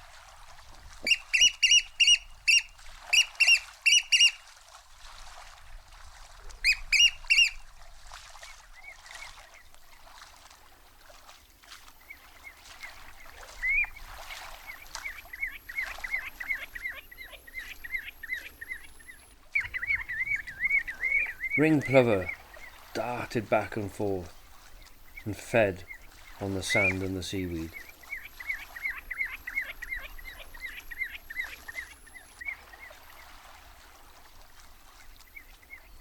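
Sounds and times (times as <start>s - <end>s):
rapid falling bird calls: 1.0s - 4.4s, 6.6s - 7.6s, 12.1s - 33.4s
shorebirds piping calls: 1.0s - 4.4s, 6.6s - 7.6s, 12.1s - 33.4s.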